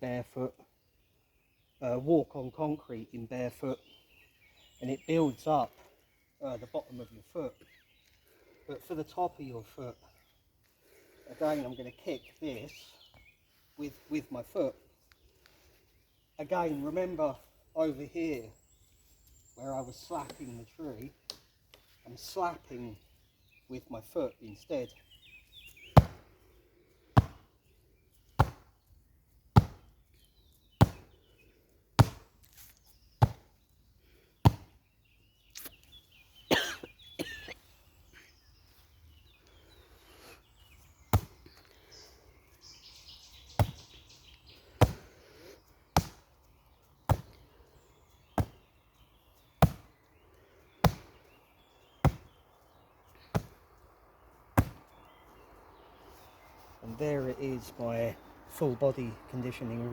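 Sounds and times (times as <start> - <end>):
bare foot slapping tree trunk: 20.1 - 21.9, 25.6 - 26.4, 27.1 - 31.2, 31.9 - 33.8, 34.4 - 34.8, 35.5 - 35.9, 40.7 - 41.9, 43.4 - 47.5, 48.1 - 50.1, 50.8 - 51.3, 51.9 - 55.4.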